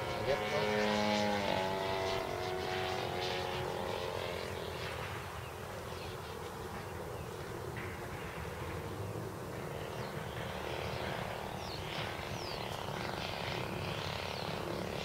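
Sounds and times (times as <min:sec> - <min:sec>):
model plane engine in flight: 0:00.0 - 0:15.0.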